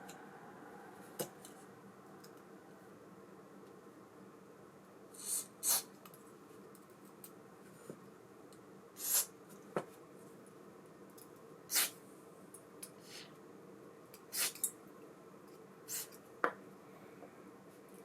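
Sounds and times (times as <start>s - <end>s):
short hissing puffs: 5.2s - 5.9s, 9.0s - 9.3s, 14.3s - 14.6s, 15.9s - 16.2s.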